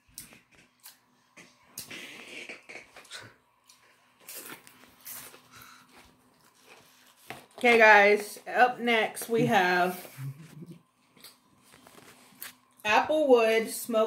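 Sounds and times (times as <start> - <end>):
person chewing potato chips: 3.0 - 7.2.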